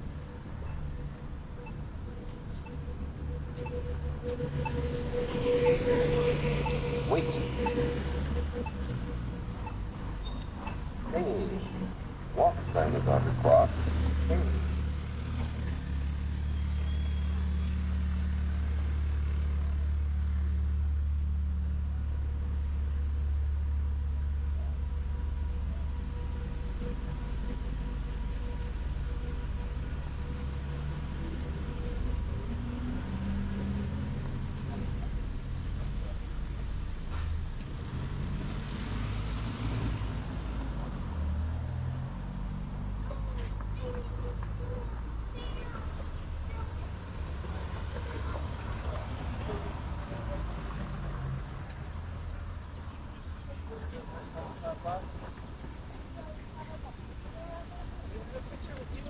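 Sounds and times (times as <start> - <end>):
vehicle engine running low: 0.0 - 59.0
tyre hiss of passing cars: 36.4 - 42.9.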